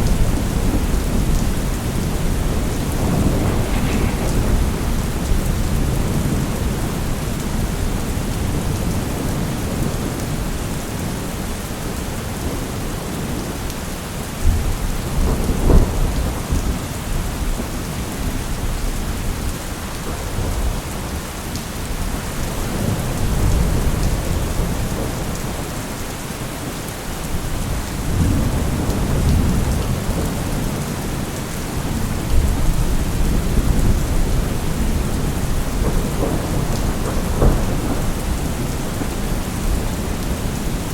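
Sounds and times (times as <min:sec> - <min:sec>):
steady rain falling: 0:00.0 - 0:40.9
low deep rumbles: 0:02.3 - 0:07.0.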